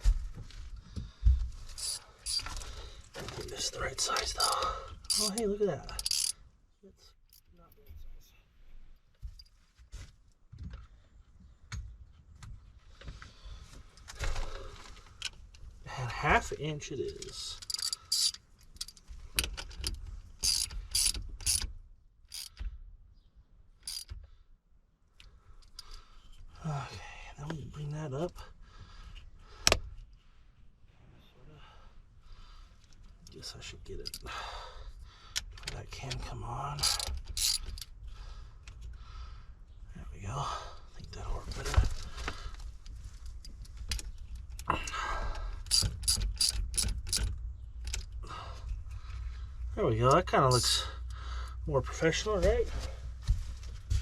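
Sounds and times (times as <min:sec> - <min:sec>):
ratchet clicking: 0:01.8 - 0:02.5, 0:04.2 - 0:06.4, 0:17.6 - 0:19.0, 0:19.6 - 0:21.7, 0:22.3 - 0:22.6, 0:23.8 - 0:24.2, 0:36.8 - 0:37.9, 0:45.6 - 0:48.2, 0:50.5 - 0:50.9.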